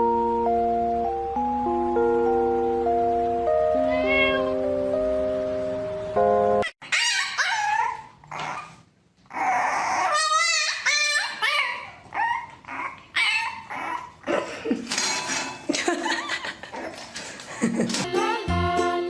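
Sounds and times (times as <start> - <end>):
background music: 0.0 - 6.6, 18.1 - 19.0
dog whining and yipping: 6.6 - 14.2.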